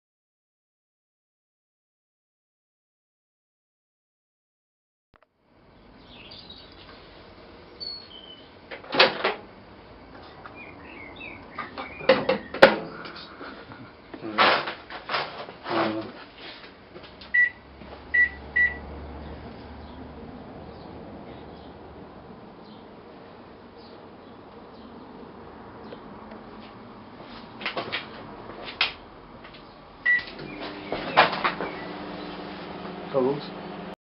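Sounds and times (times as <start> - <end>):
knocks and clatter at microwave: 11.7 - 12.9
microwave oven humming: 17.2 - 19.4, 30.0 - 34.0
short keypad beeps: 17.4 - 17.6, 18.2 - 18.8.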